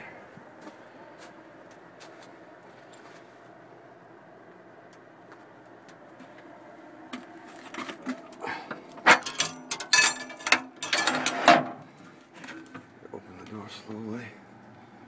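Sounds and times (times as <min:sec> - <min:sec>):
furnace humming: 0:00.0 - 0:15.0
metallic clanks and rattles: 0:09.0 - 0:11.8.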